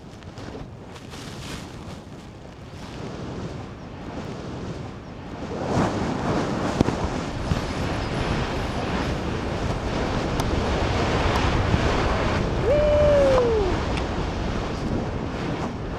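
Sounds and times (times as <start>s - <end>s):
wind rushing over microphone: 0.0s - 15.9s.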